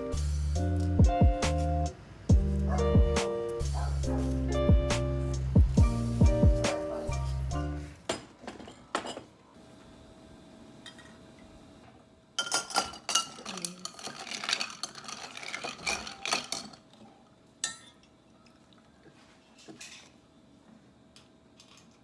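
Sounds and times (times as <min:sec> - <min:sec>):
utensils clinking on dishes: 0:08.1 - 0:09.3, 0:10.8 - 0:11.2, 0:12.4 - 0:17.0, 0:17.6 - 0:18.1.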